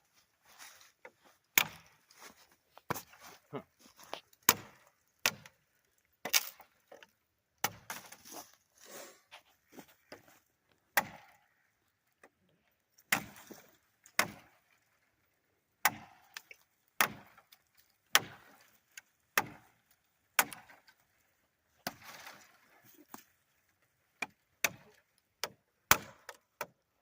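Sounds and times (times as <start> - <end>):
twigs rustling: 0.0 - 7.2, 7.8 - 10.8
knife chopping branches: 1.5 - 3.2, 4.0 - 5.6, 6.2 - 6.7, 7.6 - 8.6, 10.9 - 11.4, 13.0 - 14.6, 15.8 - 19.8, 20.4 - 21.0, 21.8 - 23.3, 24.2 - 26.8.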